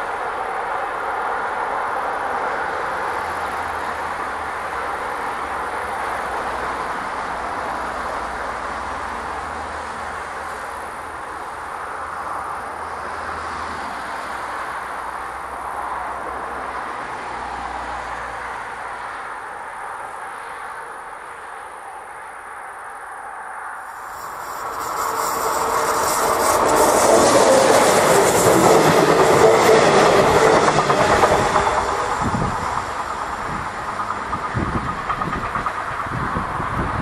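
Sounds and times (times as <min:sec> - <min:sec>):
freight train wheels rumbling: 0:23.9 - 0:37.0.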